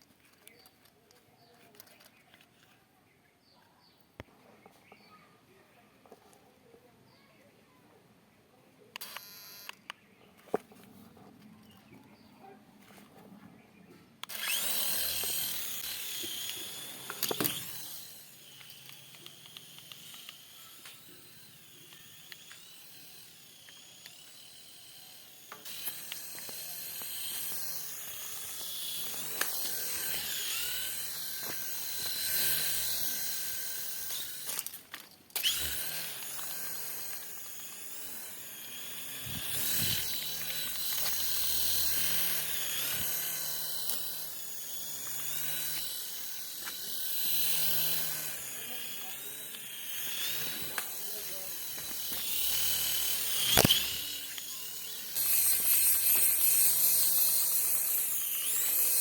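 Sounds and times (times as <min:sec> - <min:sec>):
electric toy motor whining: 0:09.0 - 0:09.9, 0:14.2 - 0:59.0
sharp clicks: 0:09.0 - 0:10.0, 0:14.2 - 0:59.0.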